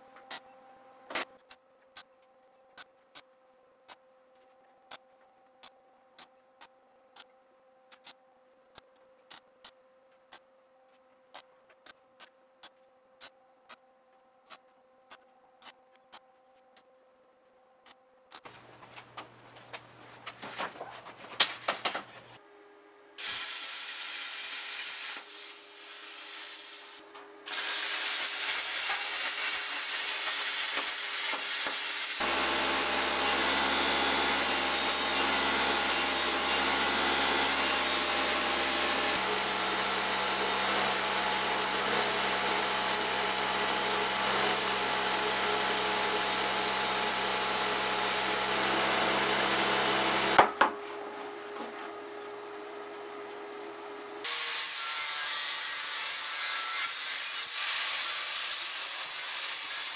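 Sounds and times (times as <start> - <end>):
power tool grinding steel: 26.2 - 50.4, 54.2 - 59.9.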